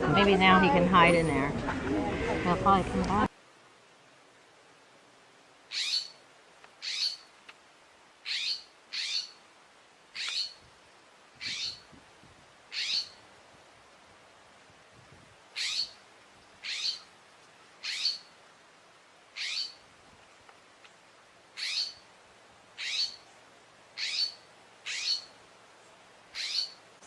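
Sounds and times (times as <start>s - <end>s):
bird scratchy call: 6.8s - 7.2s, 8.3s - 9.4s, 10.2s - 10.6s, 12.7s - 13.2s, 15.6s - 16.0s, 16.6s - 17.0s, 17.8s - 18.3s, 19.4s - 19.8s, 21.6s - 22.0s, 22.8s - 23.2s, 24.0s - 25.3s, 26.4s - 26.8s.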